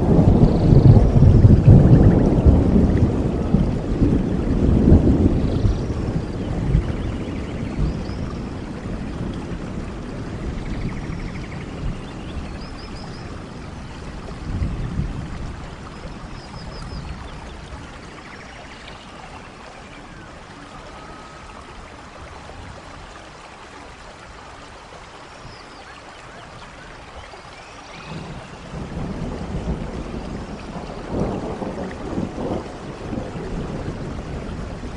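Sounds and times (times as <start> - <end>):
low rolling thunder: 0.0 - 18.3, 27.9 - 34.9
steady rain: 0.0 - 34.9.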